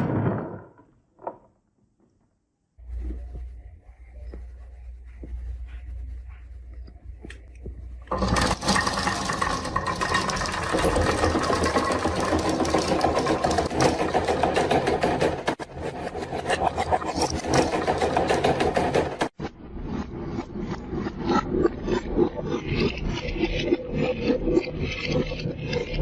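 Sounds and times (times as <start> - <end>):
marbles rattling down a track: 8.1 - 15.6.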